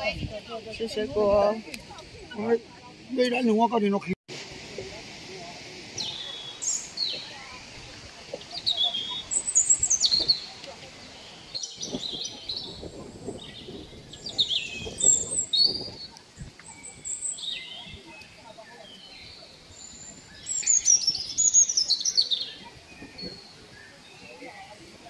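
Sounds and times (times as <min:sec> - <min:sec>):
birds singing and chirping: 0:06.0 - 0:07.4, 0:08.3 - 0:24.8.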